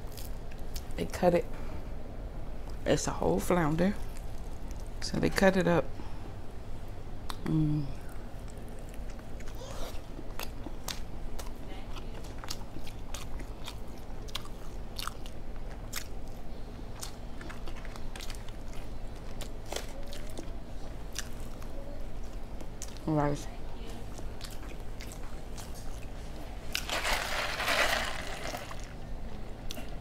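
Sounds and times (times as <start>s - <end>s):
soft crunches of chewing: 0.0s - 1.0s, 4.0s - 5.0s, 7.2s - 23.1s, 23.8s - 30.0s.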